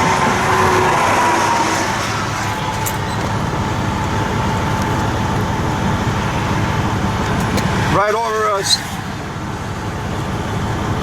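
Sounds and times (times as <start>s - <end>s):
aircraft engines droning overhead: 0.0s - 11.0s.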